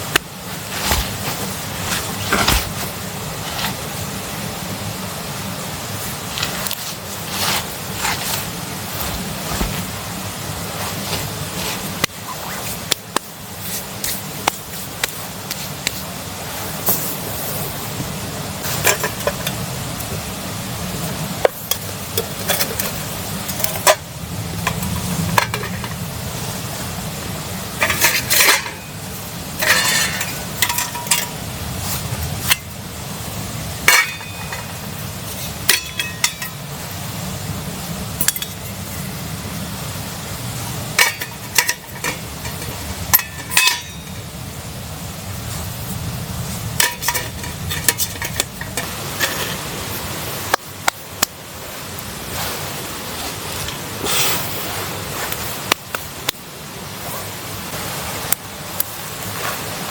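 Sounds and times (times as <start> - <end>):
low background hiss: 0.0 - 59.9
metal cookware clinking and scraping: 18.7 - 19.6, 21.6 - 24.0, 24.6 - 26.0, 27.8 - 31.4, 33.8 - 35.0, 35.6 - 36.7, 38.2 - 38.7, 40.9 - 44.3, 46.8 - 49.7
ringing metal clatters: 33.8 - 34.8, 41.0 - 44.3.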